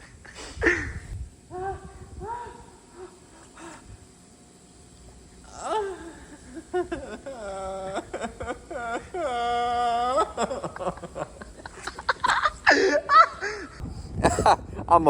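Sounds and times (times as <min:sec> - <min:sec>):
person laughing breathily: 0:00.0 - 0:01.2, 0:05.5 - 0:14.8
person making wordless vocal sounds: 0:05.4 - 0:06.4, 0:07.2 - 0:10.7.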